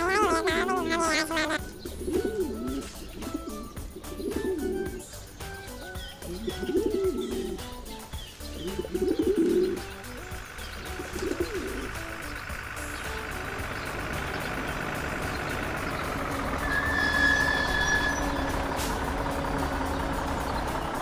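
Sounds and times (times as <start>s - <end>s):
pigeons cooing: 0.0s - 16.7s
light background music: 0.0s - 21.0s.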